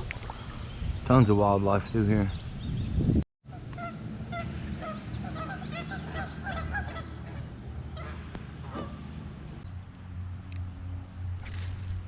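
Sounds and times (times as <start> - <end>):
geese honking: 3.5 - 9.6.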